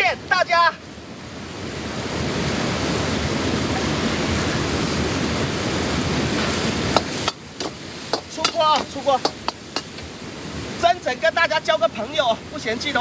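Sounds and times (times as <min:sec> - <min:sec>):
food sizzling in a wok: 0:06.3 - 0:10.6.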